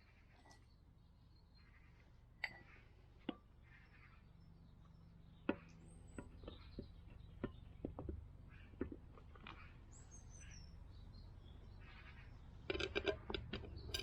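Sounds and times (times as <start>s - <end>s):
metal parts and tools clicking: 12.7s - 14.0s.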